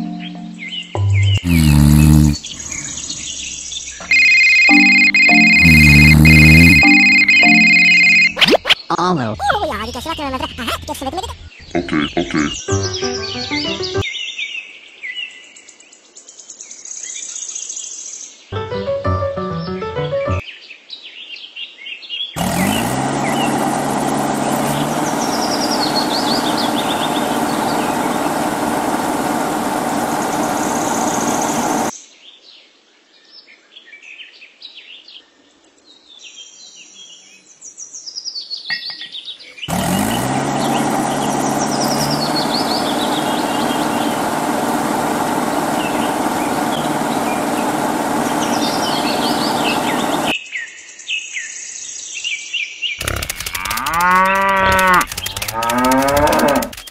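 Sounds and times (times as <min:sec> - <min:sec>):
birds chirping: 0:00.0 - 0:14.0, 0:22.4 - 0:31.9, 0:38.7 - 0:50.3, 0:53.0 - 0:56.9
motor spinning up: 0:01.4 - 0:08.4, 0:22.4 - 0:31.9, 0:39.7 - 0:50.3, 0:53.0 - 0:56.9.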